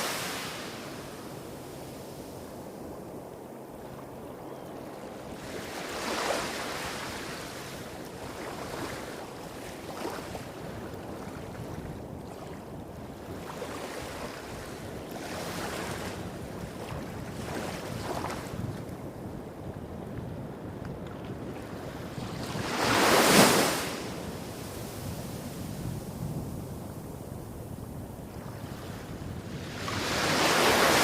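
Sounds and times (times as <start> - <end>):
small waves breaking on beach: 0.0 - 2.5, 4.9 - 18.8, 21.6 - 25.9, 28.4 - 31.0.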